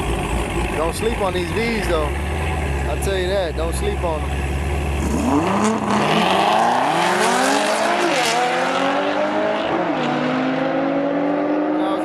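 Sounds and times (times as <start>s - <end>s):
car engines accelerating: 0.0s - 12.0s.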